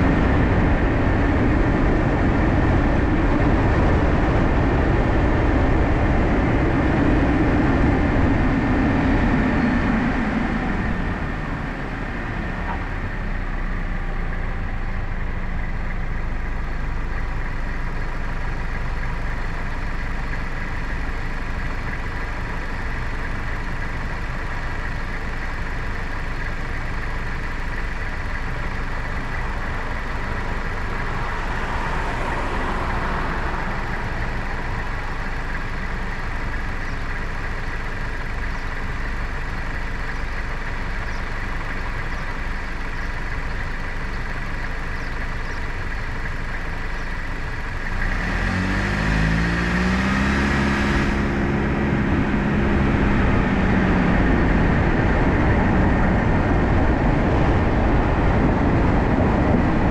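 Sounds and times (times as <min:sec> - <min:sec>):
car engine idling: 0:00.0 - 0:59.9
car passing: 0:29.5 - 0:36.6.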